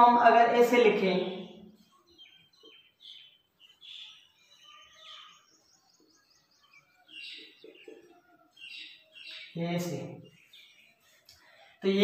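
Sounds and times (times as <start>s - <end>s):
faint bird chirping: 0.6s - 12.0s.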